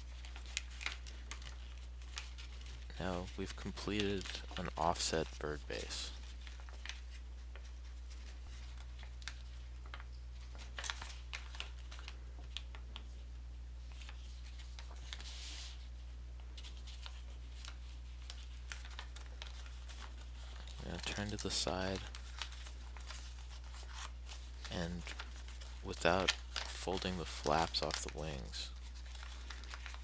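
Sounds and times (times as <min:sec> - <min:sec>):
low electrical hum: 0:00.0 - 0:30.0
paper crinkling and rustling: 0:00.0 - 0:30.0.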